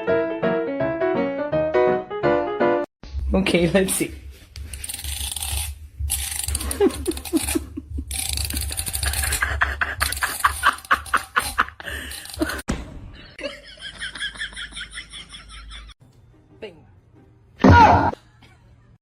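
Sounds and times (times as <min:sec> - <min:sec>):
person laughing in bursts: 0:06.6 - 0:12.7.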